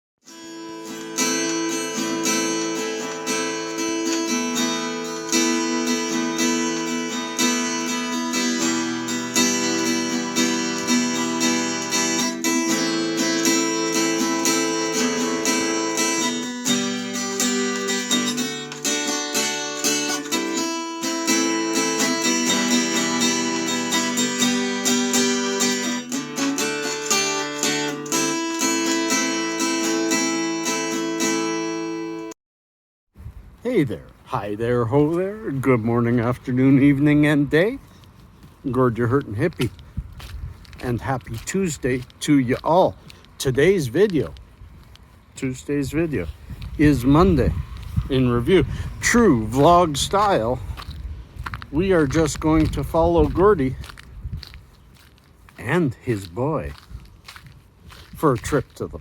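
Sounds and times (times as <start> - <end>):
strummed acoustic guitar: 0.2 - 32.3.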